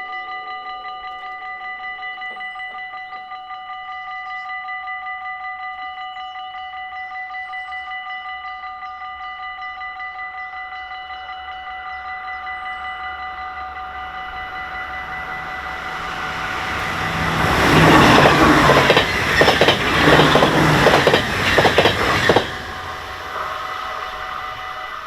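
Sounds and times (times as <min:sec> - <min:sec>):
level crossing bells ringing: 0:13.7 - 0:20.0
train wheels clattering: 0:14.6 - 0:25.0.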